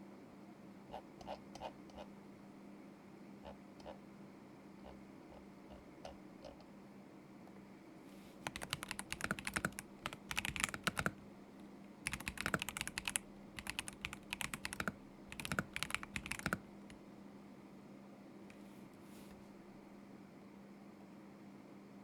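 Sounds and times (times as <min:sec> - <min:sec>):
mechanical keyboard typing: 0:08.4 - 0:11.2, 0:12.0 - 0:16.7.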